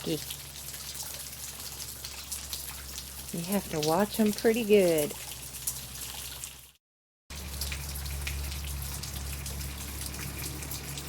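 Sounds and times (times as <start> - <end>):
rain dripping: 0.0 - 11.0.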